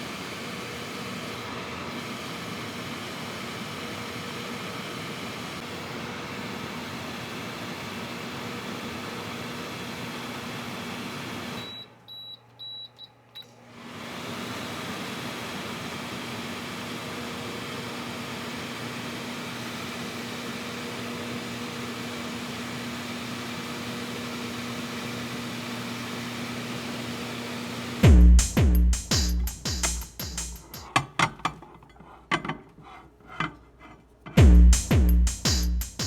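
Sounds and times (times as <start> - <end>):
microwave oven humming: 0.0 - 29.3
microwave keypad beeping: 11.6 - 13.5.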